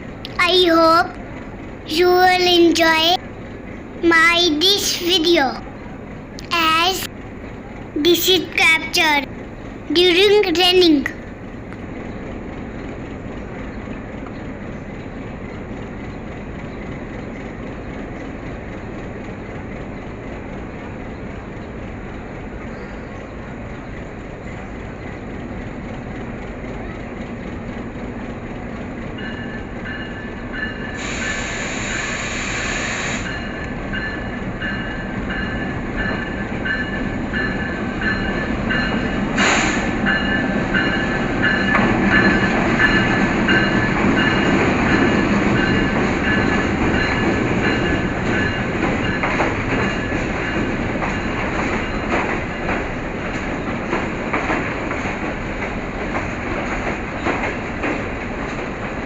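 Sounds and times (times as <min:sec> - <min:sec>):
passenger train rolling: 0:00.0 - 0:59.0
hiss: 0:30.9 - 0:33.4, 0:39.4 - 0:40.0.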